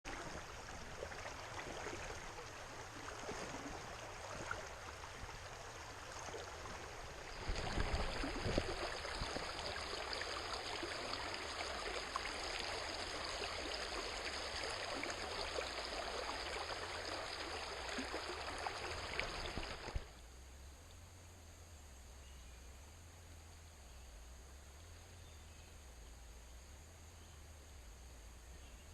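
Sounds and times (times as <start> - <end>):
stream water rushing: 0.1 - 20.2.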